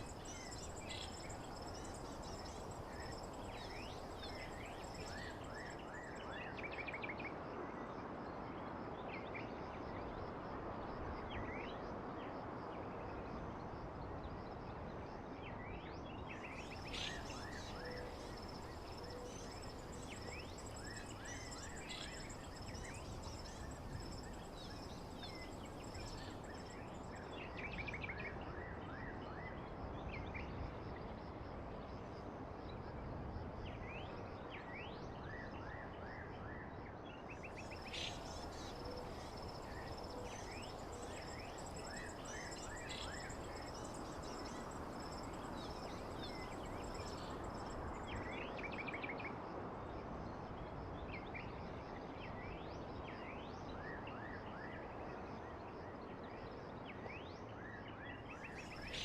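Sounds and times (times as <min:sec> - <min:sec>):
high insect trill: 0:16.6 - 0:27.2, 0:37.6 - 0:48.2.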